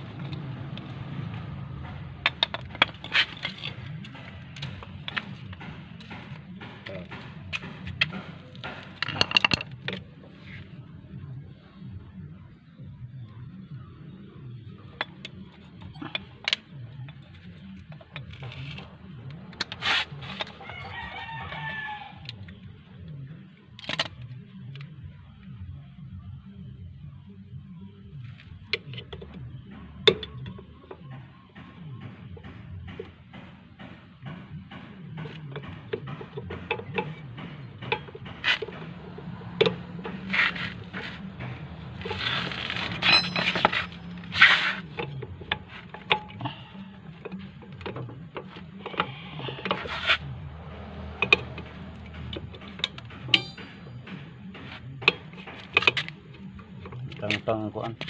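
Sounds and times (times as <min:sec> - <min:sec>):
tools clicking and knocking on metal: 0:01.7 - 0:10.2, 0:28.7 - 0:58.0
rooster crowing: 0:20.6 - 0:22.3
rasping metal scrape: 0:37.9 - 0:46.7, 0:48.8 - 0:50.4.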